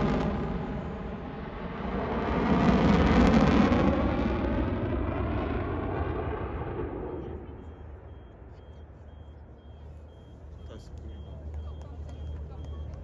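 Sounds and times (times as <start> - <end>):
fighter jet engine roar: 0.0 - 8.5.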